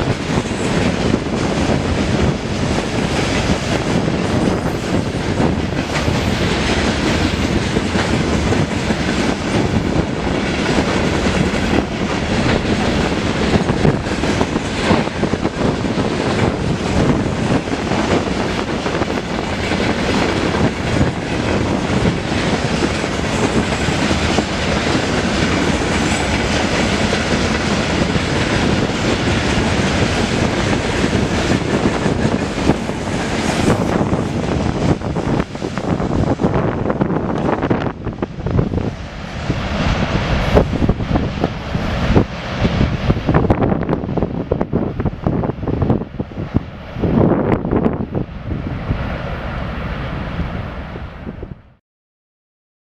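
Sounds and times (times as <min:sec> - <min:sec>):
train wheels clattering over rail joints: 0:00.0 - 0:36.4.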